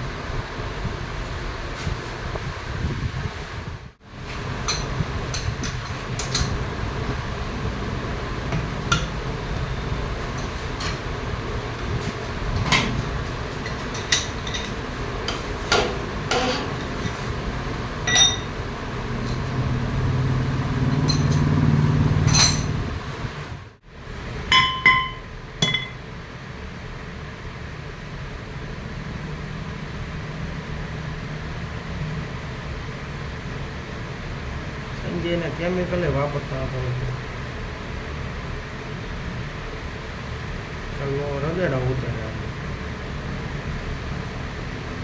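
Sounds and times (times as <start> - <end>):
steady machine hum: 0.0 - 45.0
metal tools clinking: 13.6 - 17.2, 18.1 - 18.6, 20.9 - 21.6, 22.2 - 22.8.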